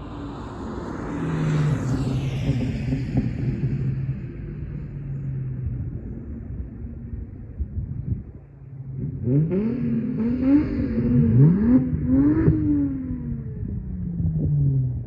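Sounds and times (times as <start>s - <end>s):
car exhaust revving: 8.9s - 15.0s.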